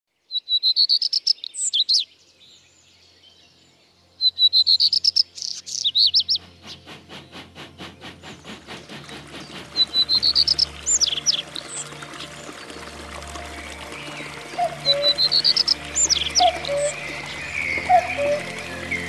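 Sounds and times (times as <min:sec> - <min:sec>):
songbird whistling: 0:09.8 - 0:11.4, 0:14.6 - 0:19.0.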